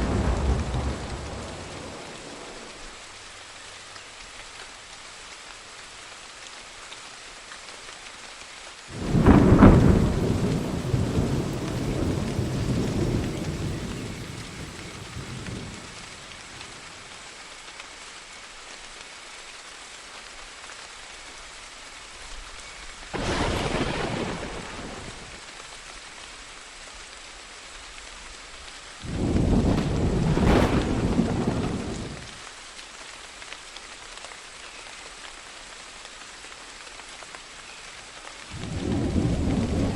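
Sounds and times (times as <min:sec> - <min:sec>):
thunder rumbling: 0:00.0 - 0:02.8, 0:08.9 - 0:16.8, 0:23.2 - 0:25.4, 0:29.0 - 0:32.4, 0:38.5 - 0:39.9
steady rain falling: 0:00.0 - 0:39.9.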